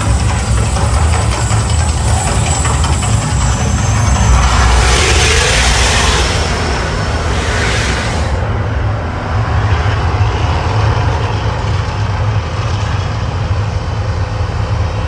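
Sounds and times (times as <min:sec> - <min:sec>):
faint hiss: 0:00.0 - 0:08.5
deep loud rumbling: 0:00.0 - 0:09.2.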